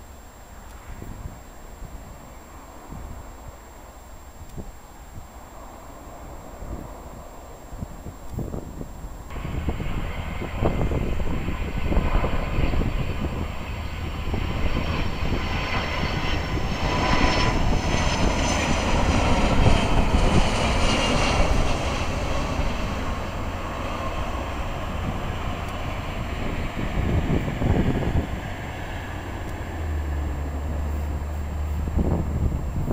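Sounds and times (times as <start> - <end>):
jet airliner engine roar: 0.0 - 32.9.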